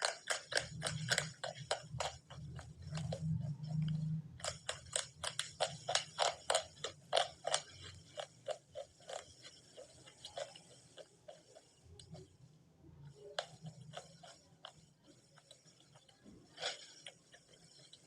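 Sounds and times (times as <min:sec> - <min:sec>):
crunchy chewing: 0:00.0 - 0:12.4, 0:13.0 - 0:18.0.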